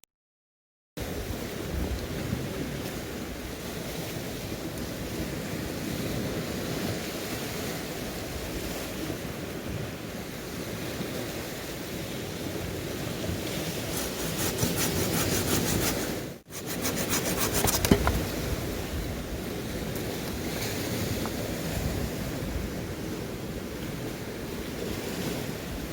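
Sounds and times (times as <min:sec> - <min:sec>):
waves washing on shore: 0:12.8 - 0:18.2
hand saw cutting wood: 0:13.7 - 0:18.3.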